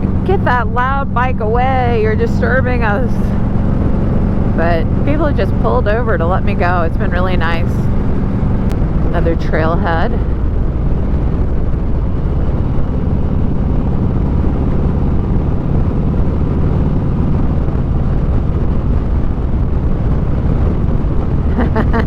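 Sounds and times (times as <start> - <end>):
motorcycle engine running: 0.0 - 22.0
wind rush: 0.0 - 22.0.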